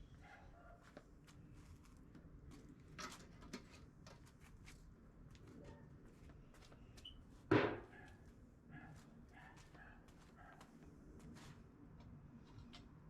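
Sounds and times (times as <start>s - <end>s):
loud knock: 7.5s - 7.8s.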